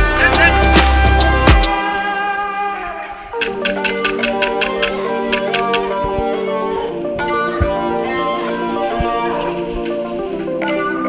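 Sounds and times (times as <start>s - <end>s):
guitar music: 3.4s - 11.0s.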